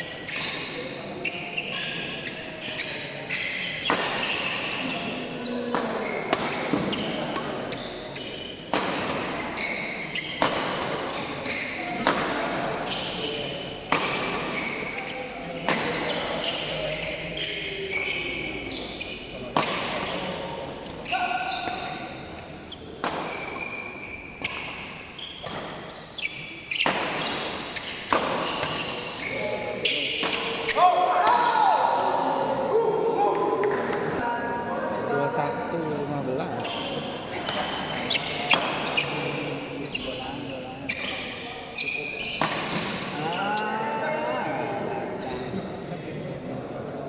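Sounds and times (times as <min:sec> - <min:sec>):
shoes squeaking on court floor: 0:00.0 - 0:30.9, 0:36.5 - 0:44.3
rackets hitting shuttlecock: 0:08.7 - 0:16.2, 0:26.7 - 0:29.4, 0:42.3 - 0:43.2.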